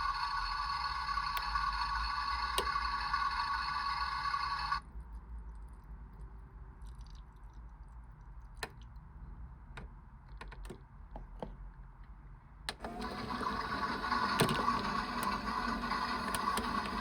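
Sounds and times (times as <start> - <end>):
toy washing machine motor whir: 0.0 - 4.8, 12.8 - 17.0.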